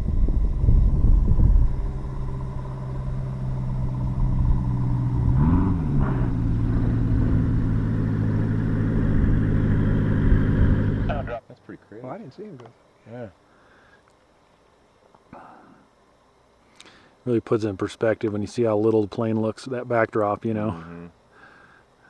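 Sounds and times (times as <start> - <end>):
light aircraft piston engine: 0.0 - 11.4.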